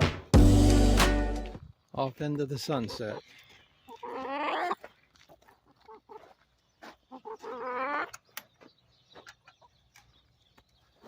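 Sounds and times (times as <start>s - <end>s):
hens squawking: 3.9s - 6.4s, 7.1s - 8.2s.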